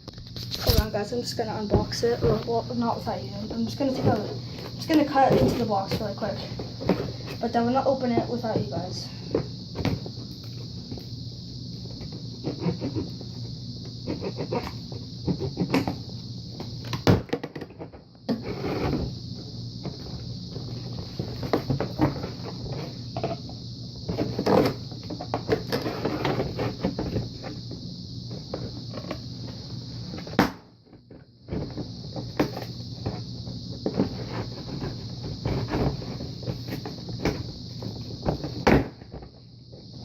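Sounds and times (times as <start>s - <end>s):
cardboard box knocks and thumps: 33.8s - 39.4s.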